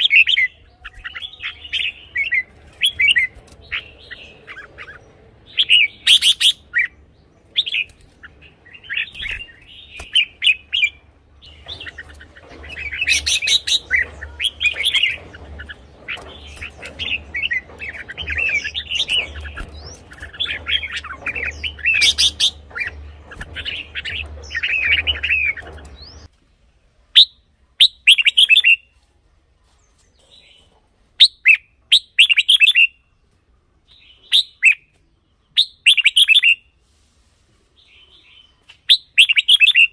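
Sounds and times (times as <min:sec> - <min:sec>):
bird singing whistled phrases: 0:27.2 - 0:28.8, 0:35.6 - 0:36.6, 0:38.8 - 0:39.9.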